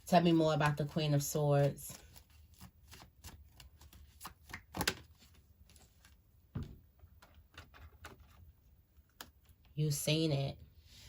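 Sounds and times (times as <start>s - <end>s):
cards being shuffled: 1.6s - 6.2s.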